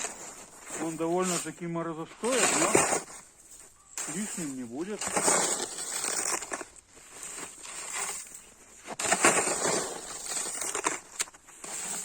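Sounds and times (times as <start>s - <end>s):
snow shovel scraping and crunching: 0.0s - 12.0s.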